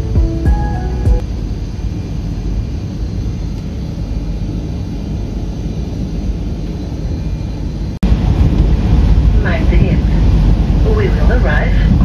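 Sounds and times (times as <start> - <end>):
train rumbling inside passenger car: 0.0 - 12.0.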